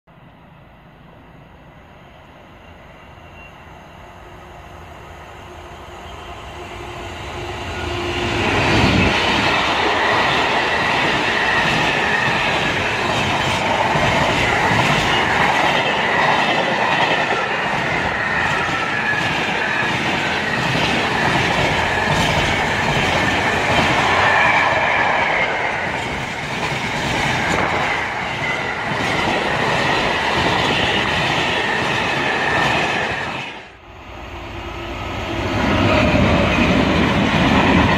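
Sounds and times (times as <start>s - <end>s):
diesel locomotive passing: 0.1s - 37.9s.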